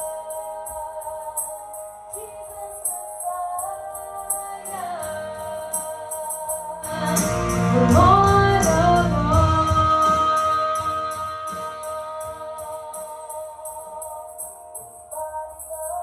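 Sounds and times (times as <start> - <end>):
keyboard chords: 0.0 - 16.0
person singing: 0.0 - 16.0
bass and band playing: 6.9 - 10.8.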